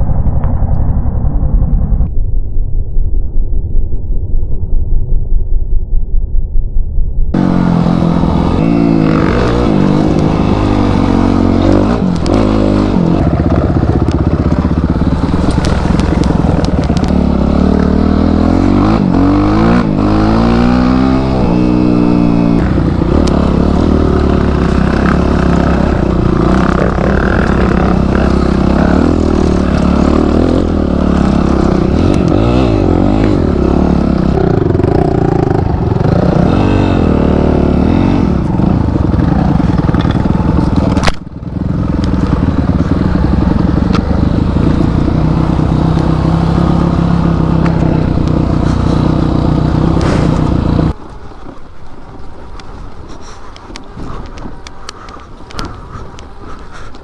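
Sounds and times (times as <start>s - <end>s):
motorcycle engine revving: 7.3s - 57.0s
bike clattering over rough ground: 9.4s - 18.0s, 38.7s - 57.0s.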